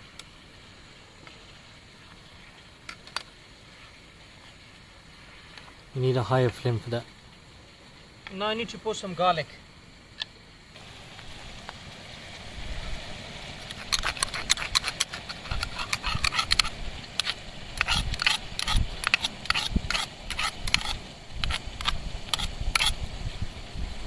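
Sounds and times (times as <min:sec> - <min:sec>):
low wind rumble: 0:10.7 - 0:24.0
utensils clattering against pot: 0:13.7 - 0:23.0.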